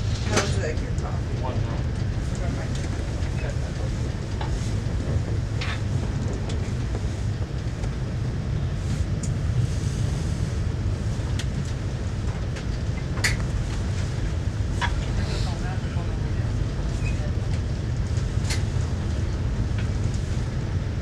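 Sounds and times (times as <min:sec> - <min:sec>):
train rumbling inside coach: 0:00.0 - 0:21.0.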